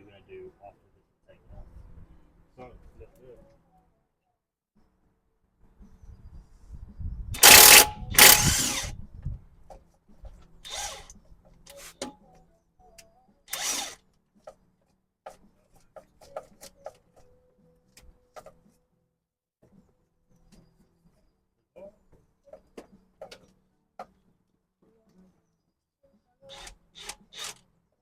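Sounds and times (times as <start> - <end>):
cordless power tool bursts: 7.4 - 9.0, 10.7 - 11.2, 13.5 - 14.0, 26.5 - 27.6.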